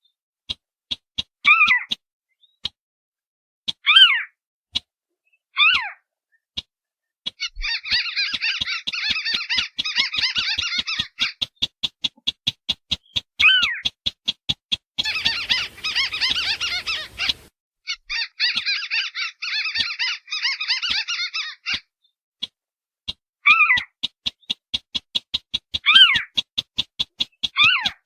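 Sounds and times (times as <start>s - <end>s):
marsh birds calling: 7.3s - 11.6s, 15.0s - 21.9s, 25.8s - 26.4s, 27.0s - 28.0s
bird chattering: 7.3s - 11.7s, 15.0s - 21.9s, 25.8s - 26.4s
fast even ticking calls: 7.3s - 28.0s
short falling bird calls: 7.4s - 11.4s, 15.0s - 21.9s.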